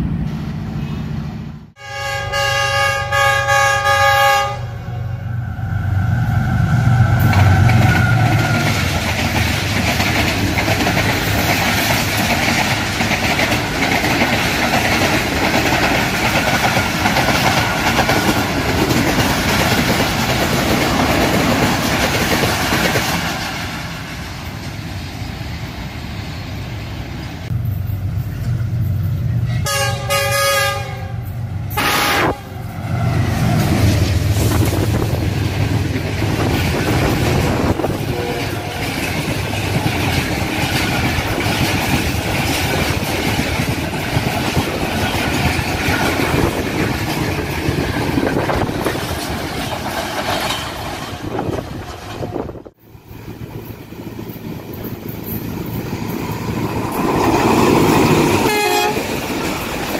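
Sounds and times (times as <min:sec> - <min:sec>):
train coaches rumbling over rails: 0:00.0 - 0:59.9
locomotive horn: 0:01.8 - 0:05.1, 0:29.5 - 0:32.7, 0:37.9 - 0:39.0, 0:58.3 - 0:59.2.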